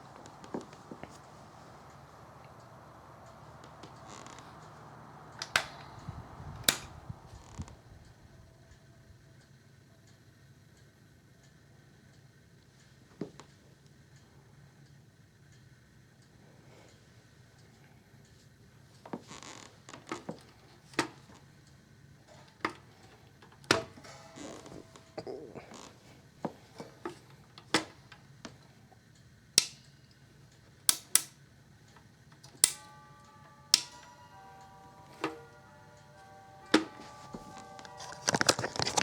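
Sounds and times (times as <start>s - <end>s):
steady tones: 0.0s - 8.4s, 32.7s - 39.0s
faint low hum: 0.0s - 12.2s, 31.5s - 39.0s
plastic fan clicks and knocks: 3.3s - 7.7s, 29.6s - 29.9s.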